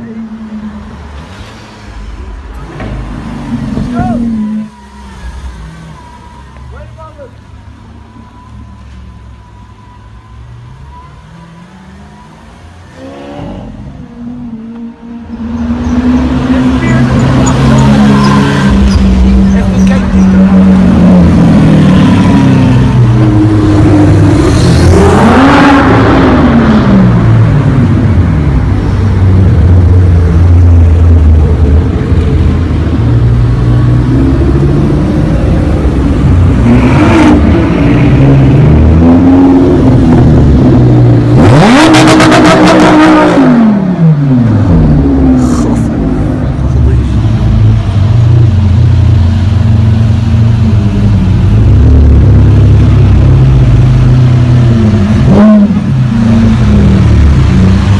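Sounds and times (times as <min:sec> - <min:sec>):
car approaching: 0:00.0 - 0:57.9
car engines rumbling: 0:00.0 - 0:57.9
engine revving: 0:15.4 - 0:28.0, 0:29.4 - 0:57.9.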